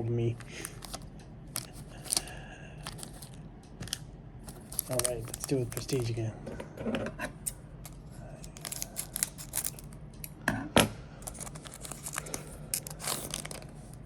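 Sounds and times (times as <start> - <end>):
wrapper tearing and crinkling: 1.6 - 3.3, 4.5 - 6.1, 8.5 - 9.9, 11.3 - 13.9.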